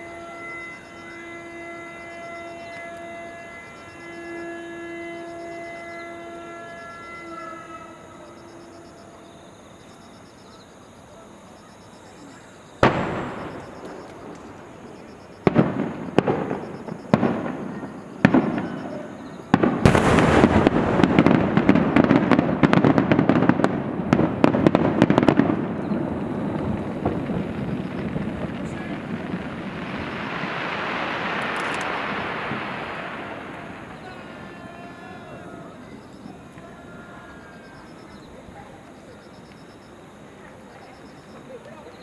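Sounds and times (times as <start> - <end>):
firework crackling: 12.0 - 41.9
firework booms: 12.7 - 38.6.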